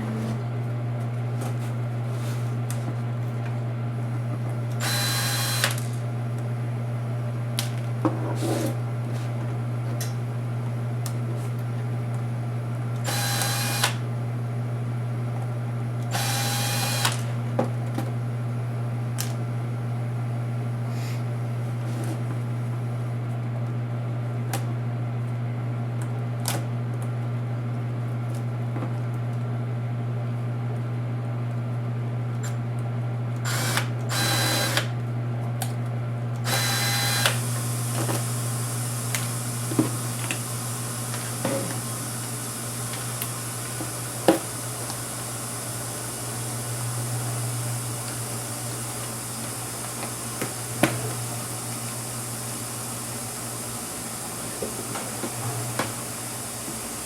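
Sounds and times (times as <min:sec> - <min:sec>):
electric screwdriver whirring: 0:04.8 - 0:05.9, 0:13.0 - 0:14.0, 0:16.1 - 0:17.3, 0:33.4 - 0:34.9, 0:36.4 - 0:38.3.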